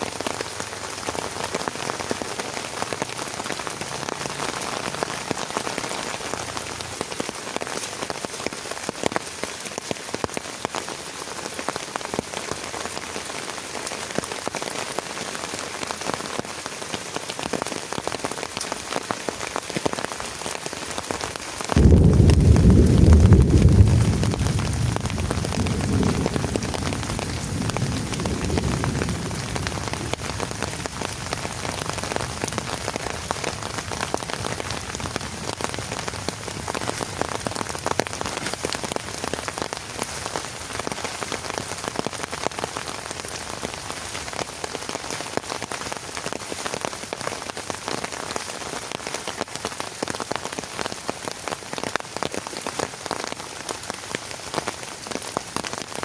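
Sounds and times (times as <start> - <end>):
heavy rain falling: 0.0 - 56.0
low rumble: 21.8 - 28.6.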